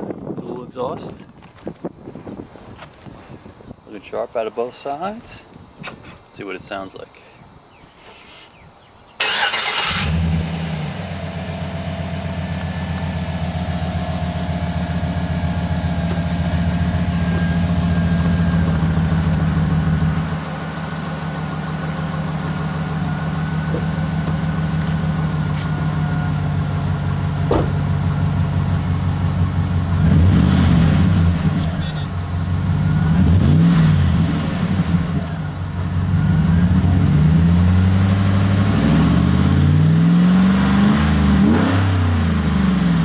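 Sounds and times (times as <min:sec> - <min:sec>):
truck engine starting and idling: 0:09.2 - 0:43.0.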